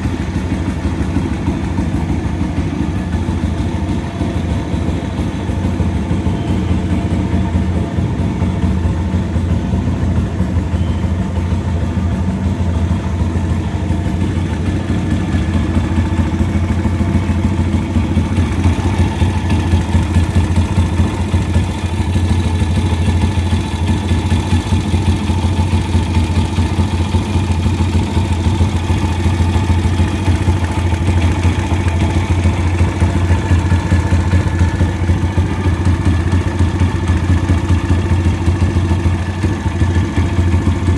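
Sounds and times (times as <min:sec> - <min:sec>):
motorbike engine idling: 0:00.0 - 0:40.9.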